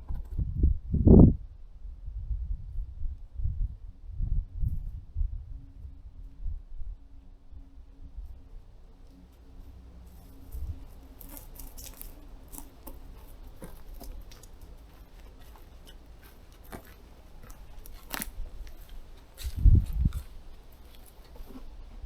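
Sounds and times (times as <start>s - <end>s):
low rumble: 0.3s - 11.2s.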